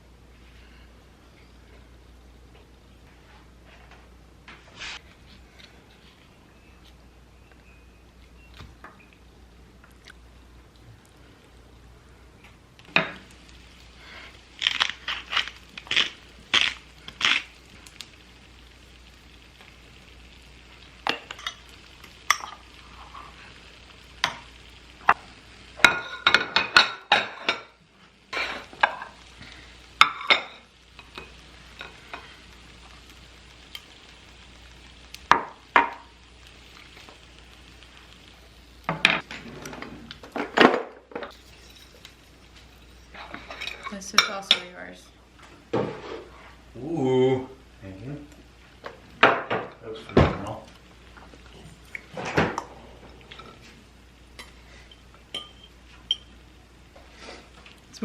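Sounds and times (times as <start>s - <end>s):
low steady hum: 0.0s - 58.0s
dishes and cutlery clinking: 54.4s - 56.4s.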